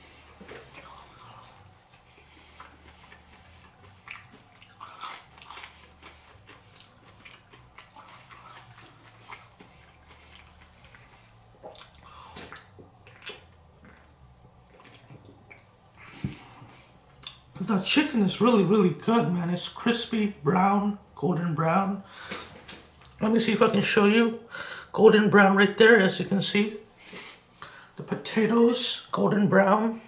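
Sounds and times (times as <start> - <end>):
person chewing crispy chicken: 0.1 - 17.5.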